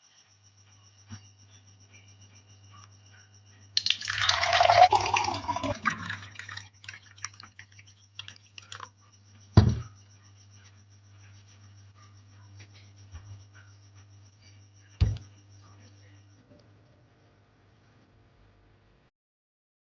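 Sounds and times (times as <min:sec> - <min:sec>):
liquid pouring and splashing: 0:03.8 - 0:08.9
dull thud: 0:09.6 - 0:09.9.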